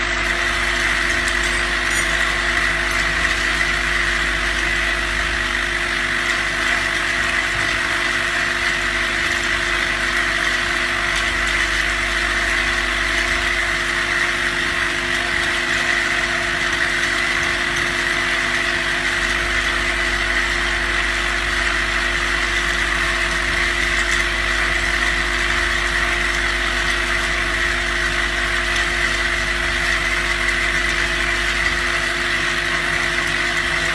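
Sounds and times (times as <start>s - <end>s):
vibratory feeder machine humming and rattling: 0.0s - 33.9s.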